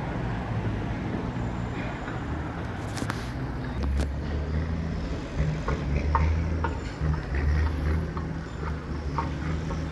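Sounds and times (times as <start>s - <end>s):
diesel truck engine running: 2.3s - 9.9s.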